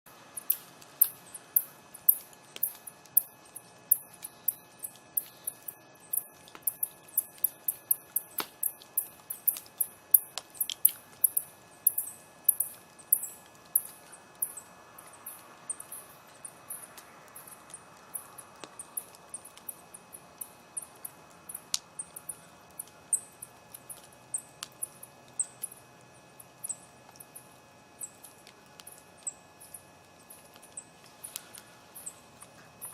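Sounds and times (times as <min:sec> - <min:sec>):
campfire crackling and popping: 0:00.4 - 0:26.0.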